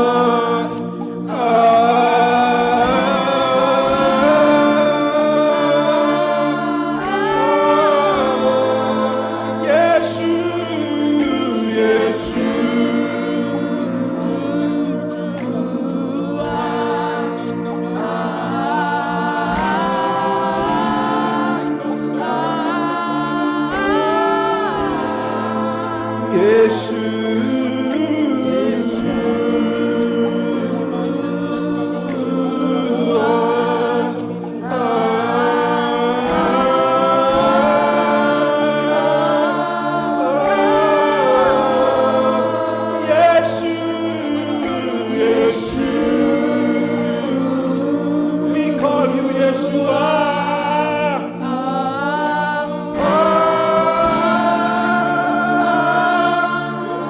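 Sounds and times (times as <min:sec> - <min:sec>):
gospel worship singing: 0:00.0 - 0:57.0
sustained held chords: 0:00.0 - 0:57.0.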